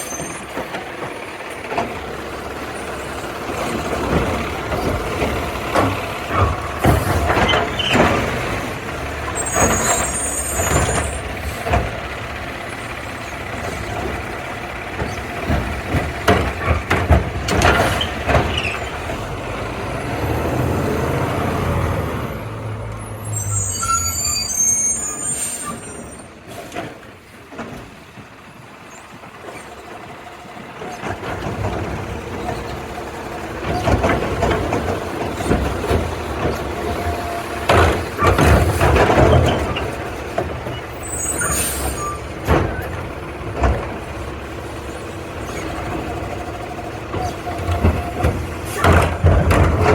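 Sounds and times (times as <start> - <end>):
diesel engine running: 0.0 - 49.9
clanks and knocks: 3.6 - 8.7, 13.5 - 19.3, 33.6 - 44.3, 47.1 - 49.9.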